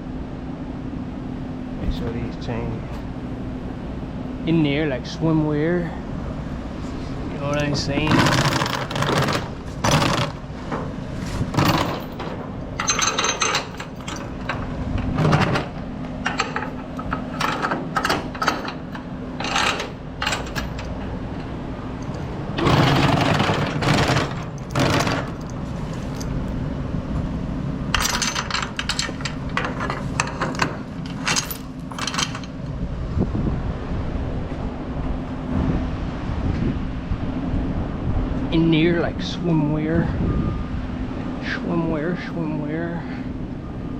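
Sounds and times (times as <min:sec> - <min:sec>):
steady low hum: 0:00.0 - 0:43.9
steel chains clinking and rattling: 0:07.4 - 0:10.5, 0:11.2 - 0:26.6, 0:27.9 - 0:32.7.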